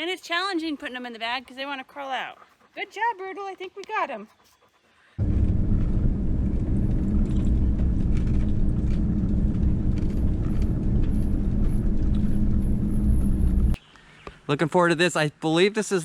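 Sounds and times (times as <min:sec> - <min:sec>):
van road rumble: 0:05.2 - 0:13.8.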